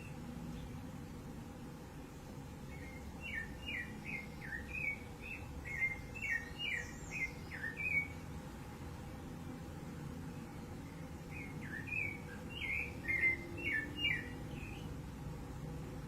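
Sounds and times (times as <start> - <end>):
thrush singing whistled notes: 2.6 - 8.3, 10.4 - 15.0.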